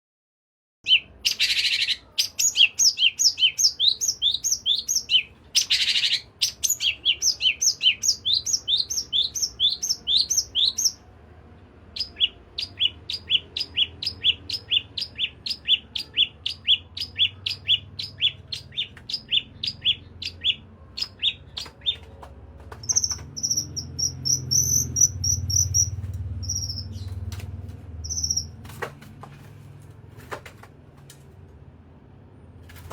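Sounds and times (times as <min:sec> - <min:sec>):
songbird whistling: 0:00.9 - 0:11.0, 0:12.0 - 0:22.0, 0:22.8 - 0:27.2, 0:28.0 - 0:28.6.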